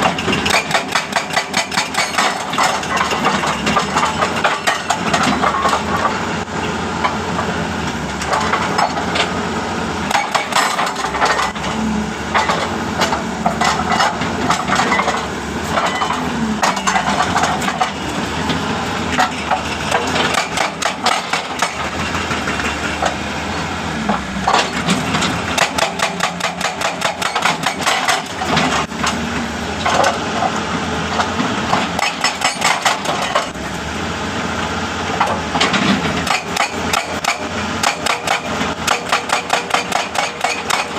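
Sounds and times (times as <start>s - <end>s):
engine running: 0.0s - 40.9s
jackhammer striking rock: 0.3s - 6.1s, 10.1s - 11.6s, 19.2s - 21.9s, 24.5s - 28.8s, 31.9s - 33.6s, 36.2s - 40.9s.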